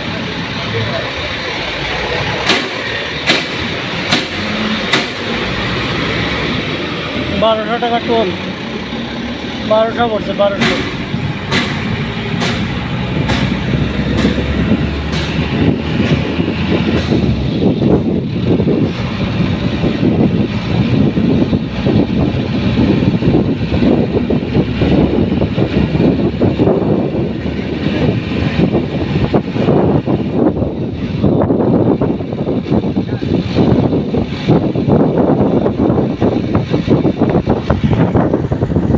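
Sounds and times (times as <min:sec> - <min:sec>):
wind and road noise: 0:00.0 - 0:38.9
regular knocking: 0:10.5 - 0:17.4.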